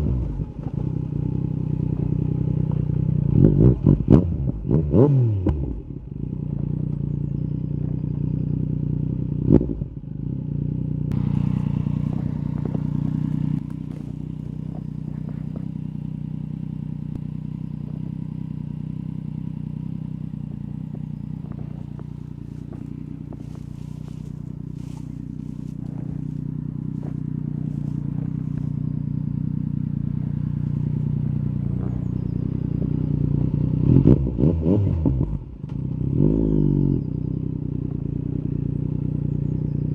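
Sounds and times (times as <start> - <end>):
motorcycle engine at low revs: 0.0 - 39.9.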